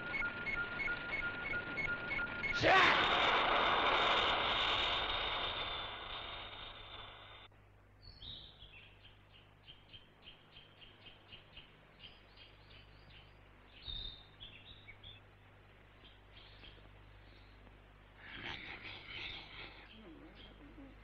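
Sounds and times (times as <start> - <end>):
faint small birds chirping: 6.4 - 21.0.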